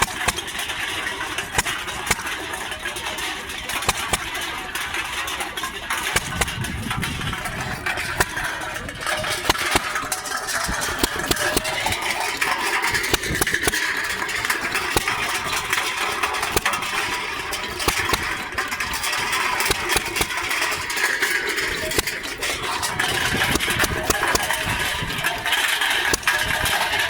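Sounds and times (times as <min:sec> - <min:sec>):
gas engine running: 0:00.0 - 0:27.0
sharp irregular clicks and knocks: 0:00.0 - 0:27.0.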